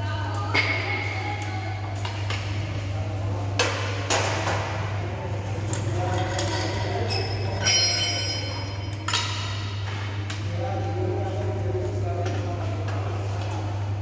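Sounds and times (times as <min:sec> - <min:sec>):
ringing metallic clank: 0:07.0 - 0:09.5.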